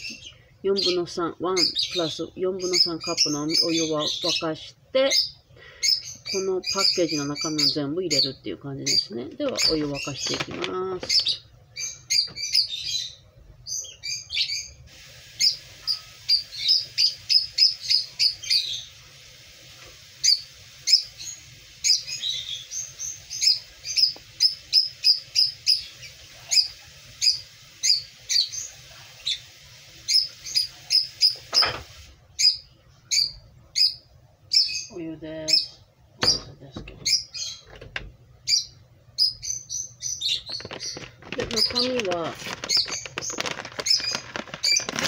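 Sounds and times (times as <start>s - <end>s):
small bird chirping: 0.0s - 14.8s, 15.4s - 19.0s, 20.2s - 31.7s, 32.4s - 37.8s, 38.4s - 45.0s.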